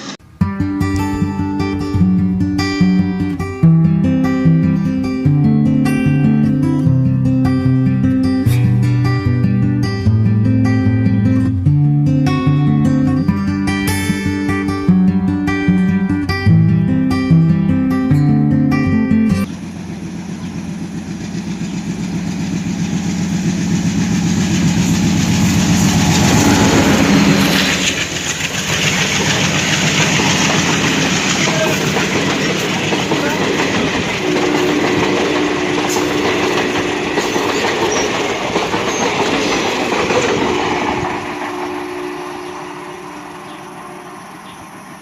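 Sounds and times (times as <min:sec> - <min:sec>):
electric train wheels clattering: 0:19.4 - 0:45.0.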